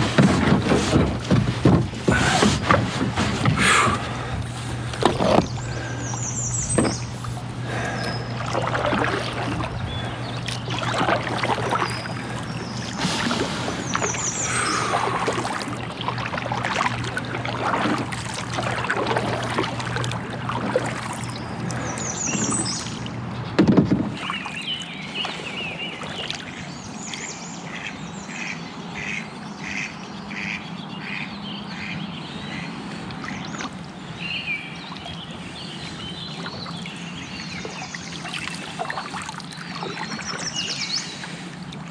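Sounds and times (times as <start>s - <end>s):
low hum: 0.0s - 27.5s
paddle strokes splashing water: 0.0s - 27.9s, 32.8s - 41.9s
birds calling: 0.0s - 41.9s.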